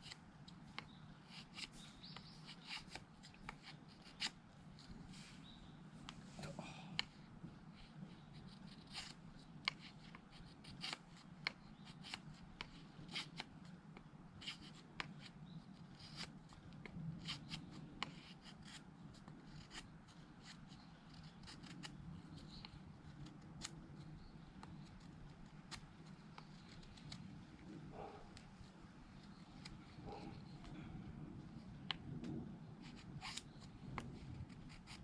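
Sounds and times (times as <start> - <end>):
knife scraping wood: 0.8 - 5.0, 7.8 - 13.5, 15.9 - 16.3, 17.2 - 30.5, 32.8 - 35.0.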